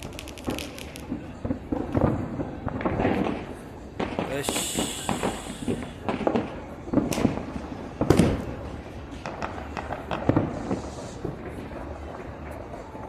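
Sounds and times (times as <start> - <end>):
fireworks bangs and pops: 0.0 - 13.0.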